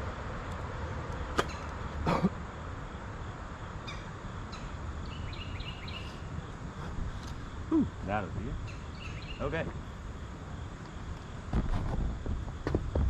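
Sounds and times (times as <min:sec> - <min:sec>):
low outdoor rumble: 0:00.0 - 0:13.0
bird chirping: 0:03.8 - 0:07.0, 0:08.6 - 0:09.6.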